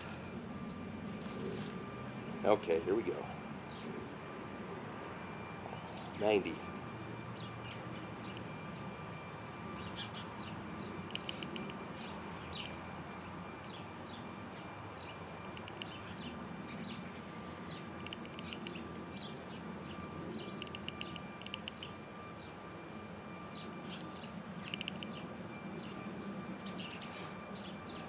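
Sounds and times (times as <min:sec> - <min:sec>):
faint high whine: 0:00.0 - 0:28.0
small birds chirping: 0:06.9 - 0:28.0.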